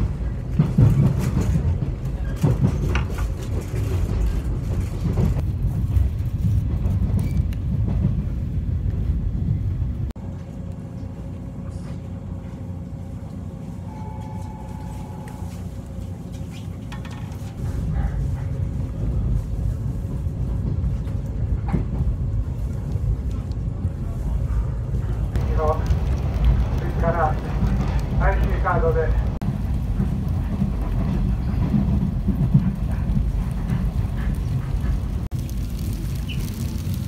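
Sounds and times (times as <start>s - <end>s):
train interior rumble: 0.0s - 37.0s.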